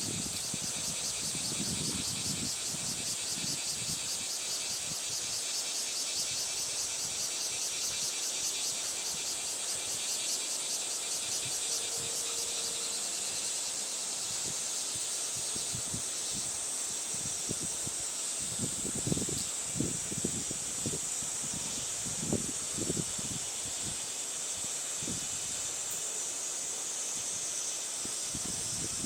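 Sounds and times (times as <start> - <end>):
gusty wind: 0.0 - 5.6, 14.2 - 25.7, 27.2 - 29.0
insect chorus trilling: 0.0 - 29.0.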